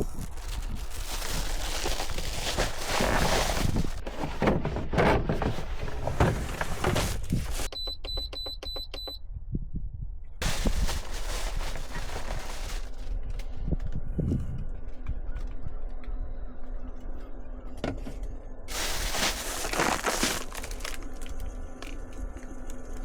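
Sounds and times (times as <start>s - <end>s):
rustling noise: 0.0s - 7.7s, 10.4s - 13.2s, 18.7s - 22.4s.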